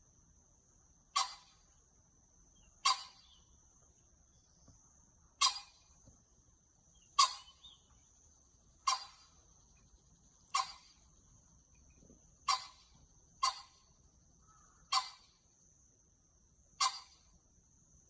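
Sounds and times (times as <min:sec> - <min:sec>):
sharp animal call: 0:01.2 - 0:01.6, 0:02.8 - 0:03.3, 0:05.4 - 0:05.8, 0:07.2 - 0:07.6, 0:08.8 - 0:09.3, 0:10.5 - 0:11.0, 0:12.5 - 0:13.9, 0:14.8 - 0:15.4, 0:16.8 - 0:17.2.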